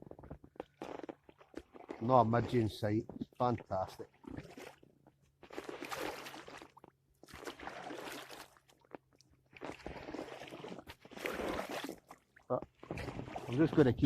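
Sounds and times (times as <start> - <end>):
kayak paddle splashing in water: 5.4 - 8.8, 9.5 - 13.8.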